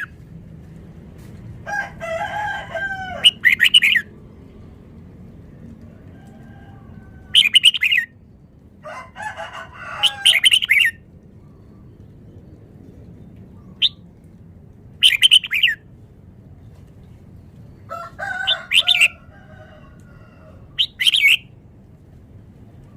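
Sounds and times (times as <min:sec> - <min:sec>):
bird chattering: 0:03.2 - 0:04.1, 0:07.3 - 0:08.1, 0:10.2 - 0:11.0, 0:15.0 - 0:15.8, 0:18.5 - 0:19.2, 0:20.8 - 0:21.5
bird singing song phrases: 0:07.3 - 0:08.6, 0:15.0 - 0:15.8.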